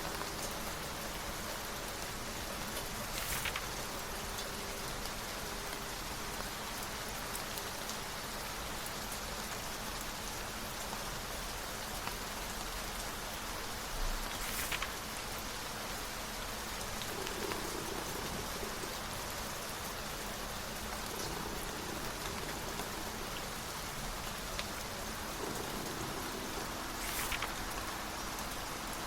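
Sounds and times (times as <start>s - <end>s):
steady rain falling: 0.0s - 29.0s
book page turning: 3.0s - 3.9s, 14.2s - 15.0s, 25.4s - 27.9s.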